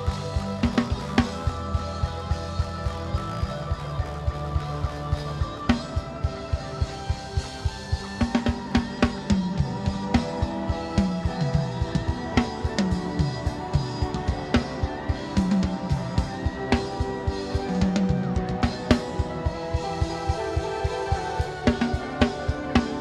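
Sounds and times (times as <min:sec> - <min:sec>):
drum kit beat: 0:00.0 - 0:23.0
keyboard chords: 0:00.0 - 0:23.0
sliding bass notes: 0:00.0 - 0:23.0.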